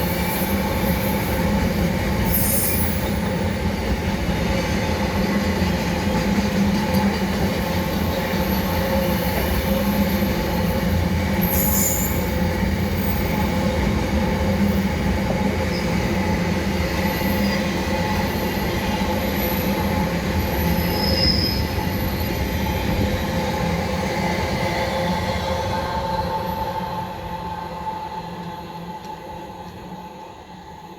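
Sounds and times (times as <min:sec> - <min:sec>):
train wheels rumbling on rail: 0:00.0 - 0:30.9
high wheel squeal: 0:02.3 - 0:03.4, 0:11.4 - 0:12.4, 0:20.4 - 0:22.5.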